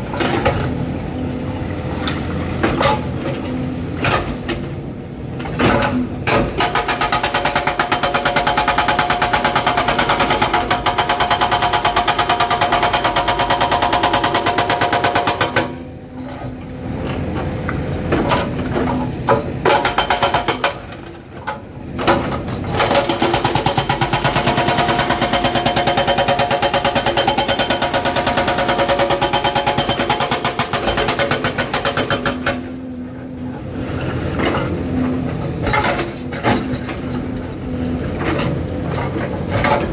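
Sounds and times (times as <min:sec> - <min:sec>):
hydraulic breaker hammering rock: 0:05.5 - 0:15.9, 0:18.1 - 0:21.2, 0:22.0 - 0:32.8.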